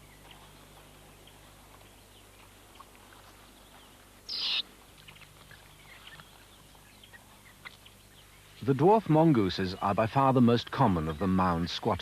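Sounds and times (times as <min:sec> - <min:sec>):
faint chirps: 0:02.0 - 0:08.8
harsh high-pitched animal call: 0:04.3 - 0:04.6.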